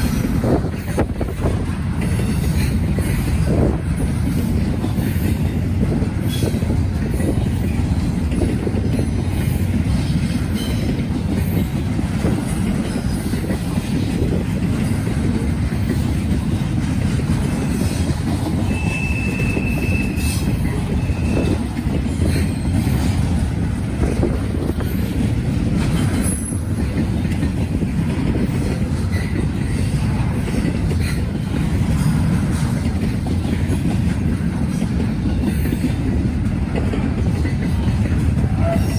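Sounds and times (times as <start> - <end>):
train wheels clicking over rail joints: 0.0 - 38.9
high wheel squeal: 17.7 - 23.0.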